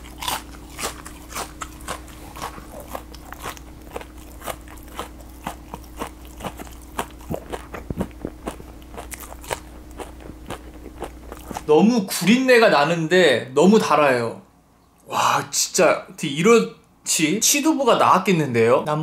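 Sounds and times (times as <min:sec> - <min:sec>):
crisp fried food crunching: 0:00.0 - 0:12.2.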